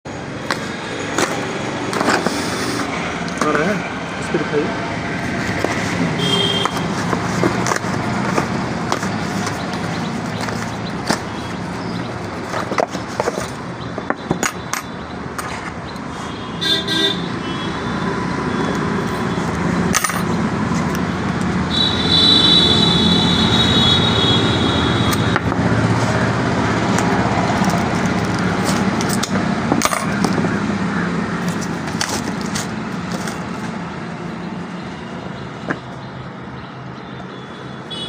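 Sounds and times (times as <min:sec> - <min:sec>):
street traffic: 0:00.0 - 0:38.0
vehicle horn tooting: 0:06.1 - 0:06.9, 0:16.2 - 0:19.4, 0:21.7 - 0:25.4, 0:37.1 - 0:38.0.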